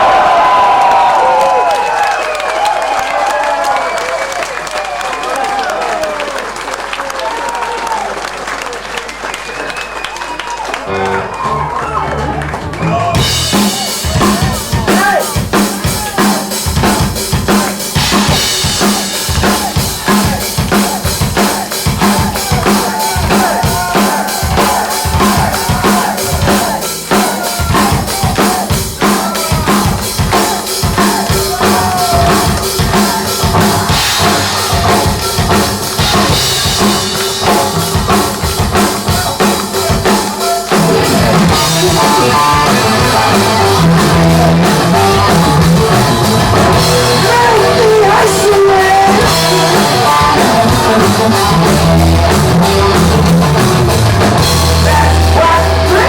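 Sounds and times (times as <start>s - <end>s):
drum kit fast beat: 13.1s - 56.0s
wavering electric guitar: 17.5s - 56.0s.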